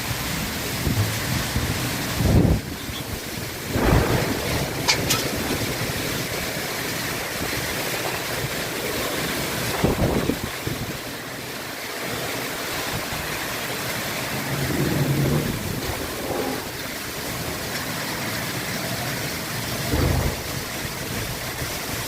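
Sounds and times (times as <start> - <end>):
wind rumble on microphone: 0.0 - 11.2, 14.2 - 17.9, 19.6 - 22.0
steady rain hiss: 0.0 - 22.0.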